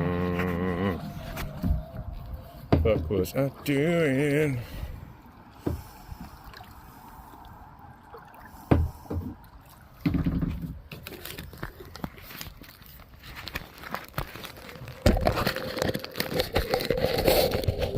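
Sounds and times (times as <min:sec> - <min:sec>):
paddle strokes sloshing water: 0:00.4 - 0:14.7.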